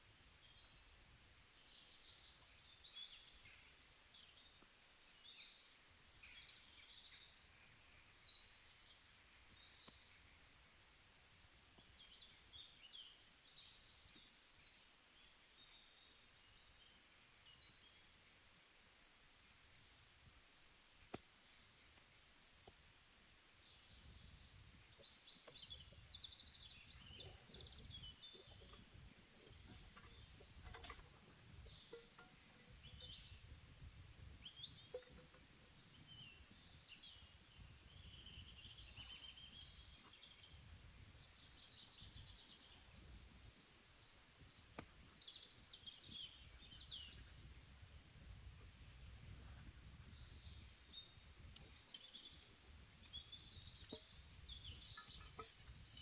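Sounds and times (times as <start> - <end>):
small birds chirping: 0.0 - 10.7, 11.4 - 56.0.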